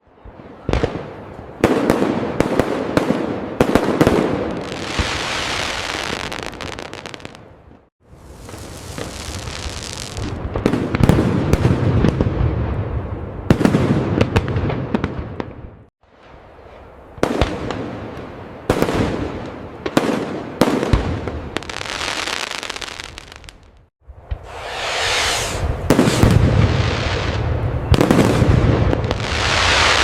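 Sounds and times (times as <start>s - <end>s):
fireworks crackling: 1.6s - 7.5s, 8.1s - 12.2s, 16.1s - 30.0s.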